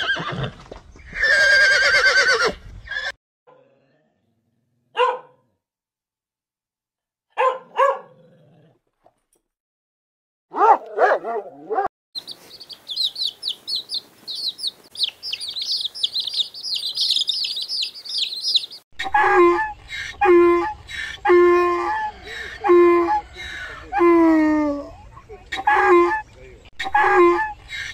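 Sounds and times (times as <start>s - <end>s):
rapid high-pitched chirps: 12.2s - 18.8s.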